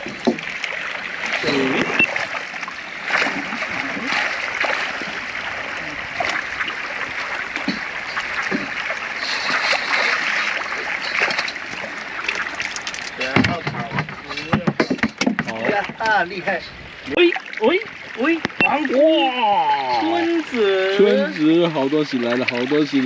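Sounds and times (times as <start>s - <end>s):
fish splashing in water: 0.0s - 13.7s
fish slapping: 3.0s - 5.2s, 6.2s - 14.0s.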